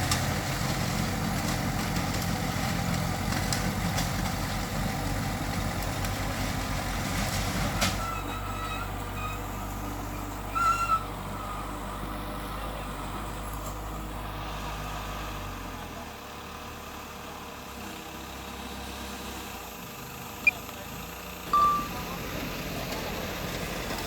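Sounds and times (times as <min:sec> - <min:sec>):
heavy diesel machinery running: 0:00.0 - 0:24.0
brief high tone: 0:21.5 - 0:22.3.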